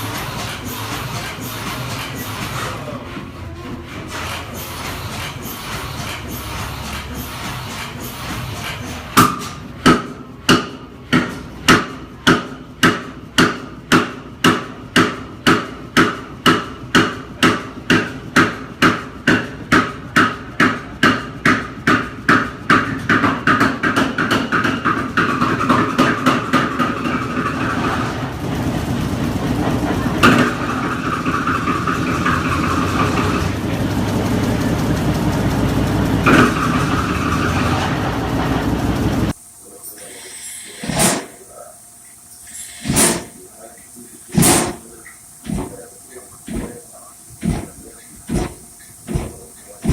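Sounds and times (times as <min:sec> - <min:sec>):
old engine firing knocks: 0:42.8 - 0:43.4, 0:44.3 - 0:49.9.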